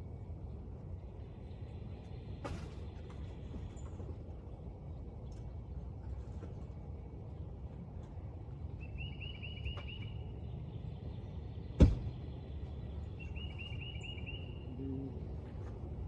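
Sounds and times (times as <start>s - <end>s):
low outdoor rumble: 0.0s - 16.0s
songbird trilling: 13.2s - 14.6s.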